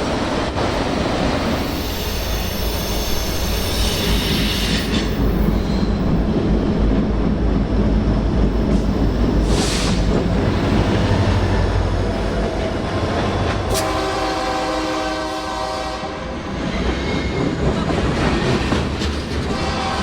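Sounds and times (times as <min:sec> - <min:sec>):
train rumbling past: 0:00.0 - 0:20.0
locomotive air horn chord: 0:13.7 - 0:16.2.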